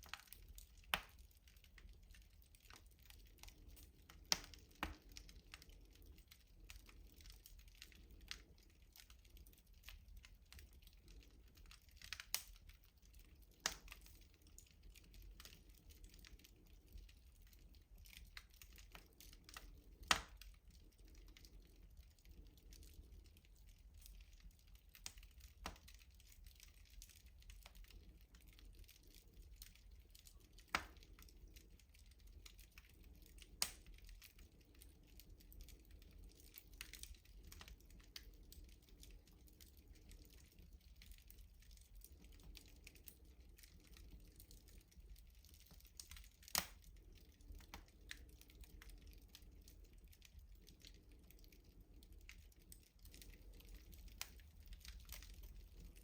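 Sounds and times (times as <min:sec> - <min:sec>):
wood fire crackling: 0:00.0 - 0:56.0
sharp fire pops: 0:19.5 - 0:20.4, 0:33.6 - 0:34.0, 0:46.5 - 0:46.8.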